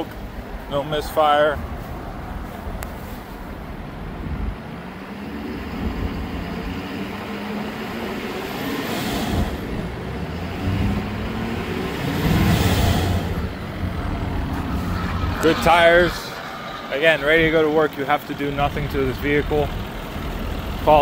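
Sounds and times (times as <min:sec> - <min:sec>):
diesel engine idling: 0:09.3 - 0:21.0.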